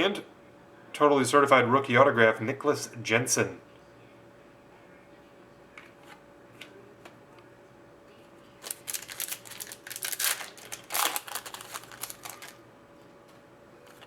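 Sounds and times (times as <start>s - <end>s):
card pack wrapper crinkling: 8.6s - 12.6s
cards rustling: 8.6s - 12.6s.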